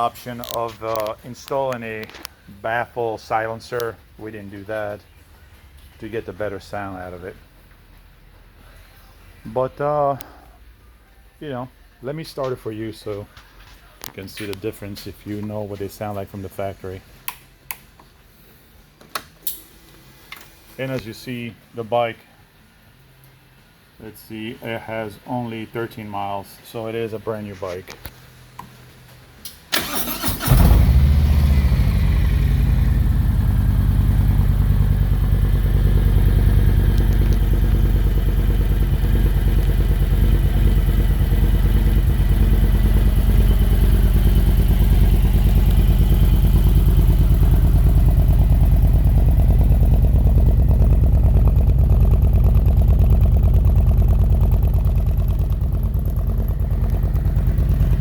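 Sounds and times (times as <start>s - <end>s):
motorcycle engine starting: 29.5s - 58.0s
motorcycle engine idling: 29.8s - 58.0s.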